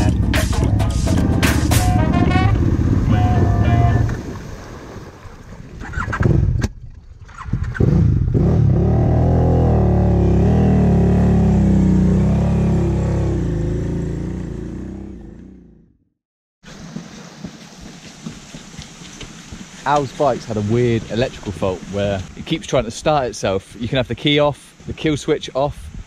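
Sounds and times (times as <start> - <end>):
water splashing: 1.9 - 7.6, 16.6 - 25.6
motorcycle engine under throttle: 7.3 - 15.8.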